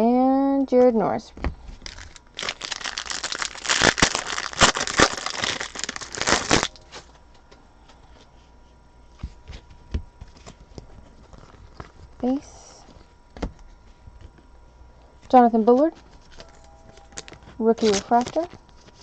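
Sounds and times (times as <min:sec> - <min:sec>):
foil wrapper tearing and crinkling: 0:01.8 - 0:06.8, 0:17.1 - 0:19.0.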